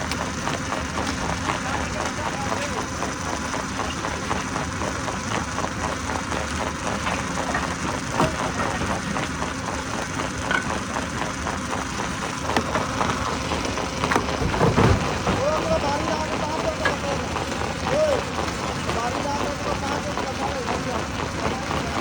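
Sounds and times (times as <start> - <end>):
stone crusher machine droning: 0.0 - 22.0
sharp knocks: 7.1 - 9.2.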